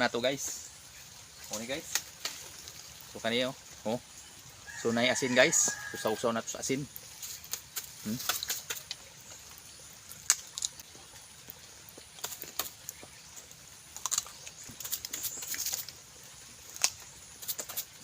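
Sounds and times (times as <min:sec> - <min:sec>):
wet crunching: 0:07.0 - 0:16.0
person biting and chewing fruit: 0:10.2 - 0:16.0.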